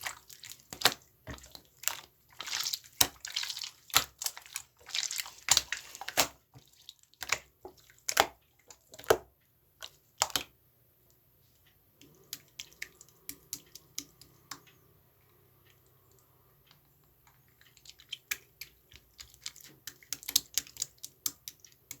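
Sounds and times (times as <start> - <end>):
slime squished by hand: 0.0 - 9.3.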